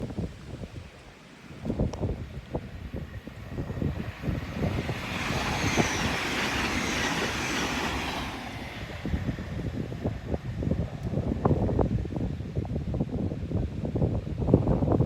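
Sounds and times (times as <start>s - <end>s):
wind buffeting microphone: 0.0s - 15.0s
train passing at speed: 1.9s - 12.5s.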